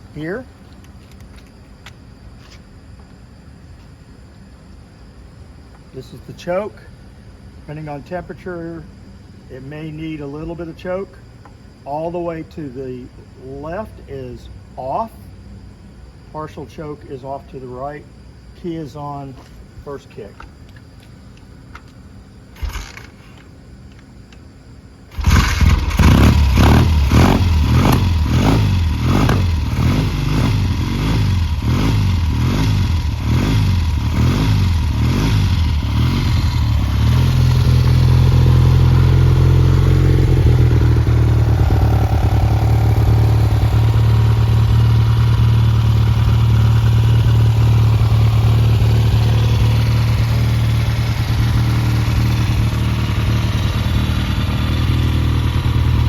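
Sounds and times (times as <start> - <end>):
motorcycle engine idling: 25.1 - 56.0.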